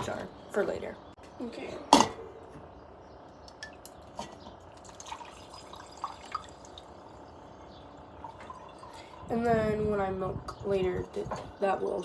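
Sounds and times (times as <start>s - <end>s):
milk pouring into a jar: 4.8s - 7.1s
faint drips: 7.9s - 9.3s.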